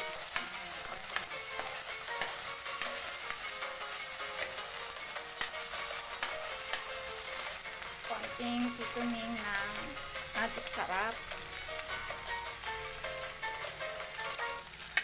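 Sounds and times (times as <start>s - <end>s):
spatula scraping and tapping pan: 0.0s - 8.4s
background music: 0.0s - 15.0s
food sizzling in hot oil: 0.0s - 15.0s.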